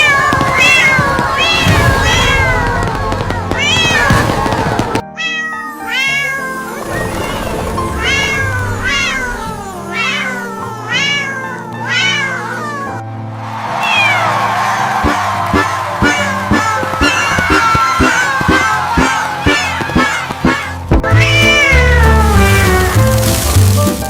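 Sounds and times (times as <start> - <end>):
cat meowing: 0.0 - 13.0, 13.8 - 23.0
background music: 0.3 - 24.0.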